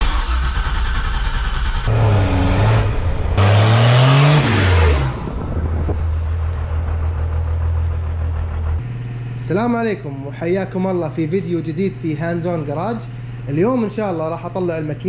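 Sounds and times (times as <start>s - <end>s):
engine idling: 0.0s - 3.4s, 5.1s - 15.0s
engine revving: 0.0s - 9.8s.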